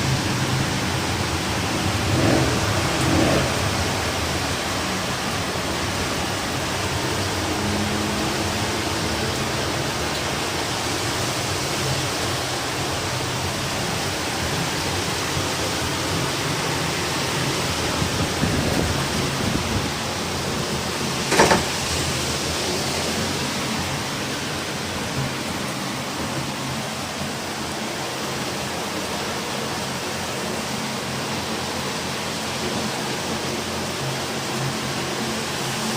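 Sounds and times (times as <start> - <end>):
heavy rain: 0.0 - 35.9
strong wind: 0.0 - 35.9
sharp knock: 21.3 - 21.8.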